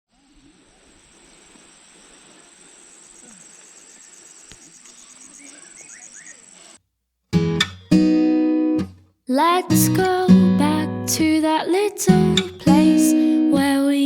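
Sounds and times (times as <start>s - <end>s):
faint hiss: 0.1s - 6.8s
insects chirring: 0.1s - 6.8s
short insect chirps: 0.1s - 6.8s.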